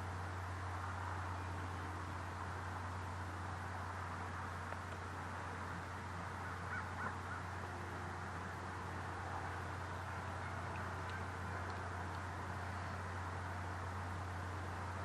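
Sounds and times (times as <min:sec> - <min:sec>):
low hum: 0:00.0 - 0:15.0
steady hiss: 0:00.0 - 0:15.0
short bird calls: 0:06.4 - 0:07.5.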